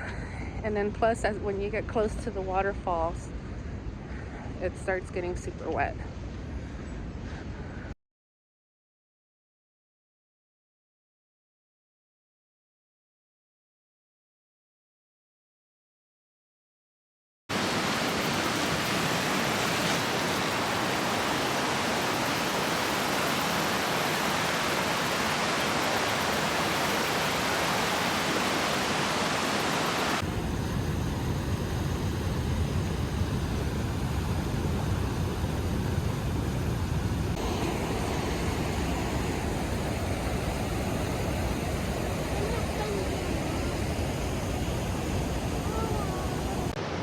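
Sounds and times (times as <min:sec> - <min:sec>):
waterfall roaring: 0:17.5 - 0:47.0.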